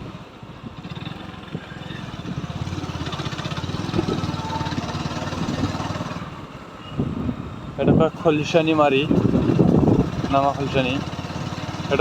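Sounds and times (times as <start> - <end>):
motorcycle engine running: 0.0 - 6.4, 8.3 - 12.0
wind and road noise: 0.0 - 12.0.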